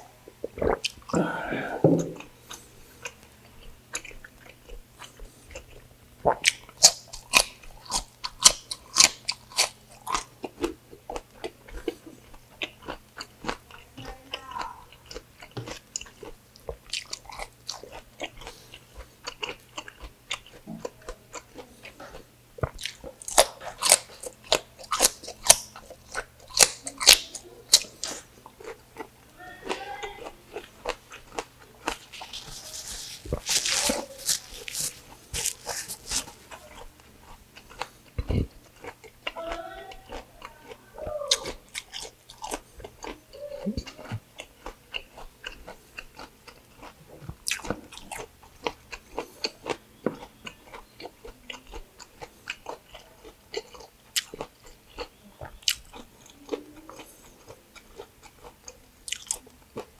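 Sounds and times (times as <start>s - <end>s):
chewing crunchy cucumber: 0.0s - 59.9s
mouth smacks: 0.4s - 3.2s, 5.0s - 10.7s, 30.5s - 37.0s.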